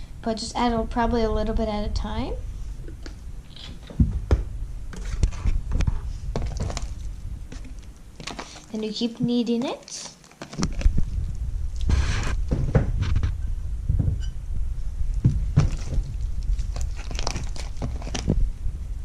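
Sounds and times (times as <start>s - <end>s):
low handling rumble: 0.0s - 9.4s, 10.7s - 19.0s
slime squelching by hand: 5.0s - 12.4s, 15.5s - 18.3s.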